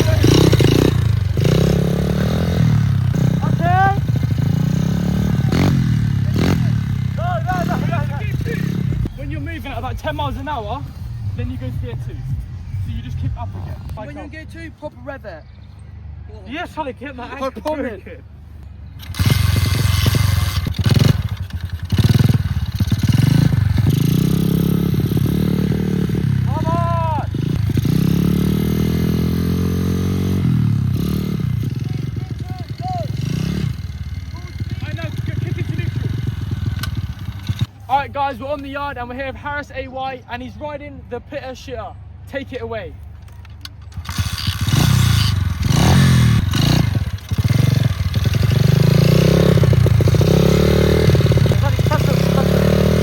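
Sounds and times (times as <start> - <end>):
pit bike engine revving: 0.0 - 14.2, 18.9 - 37.8, 43.9 - 53.0.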